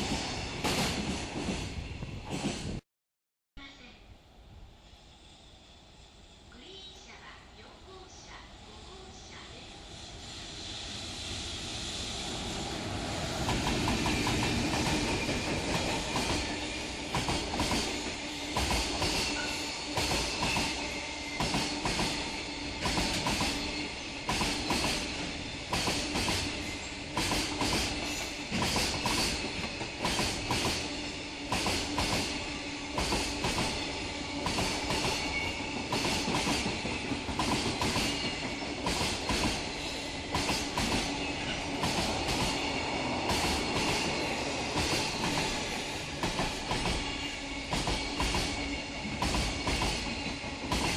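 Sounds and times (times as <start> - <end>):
train rumble: 0.0 - 2.8, 4.5 - 50.9
train wheels clattering on rail joints: 13.3 - 20.8, 21.4 - 50.9.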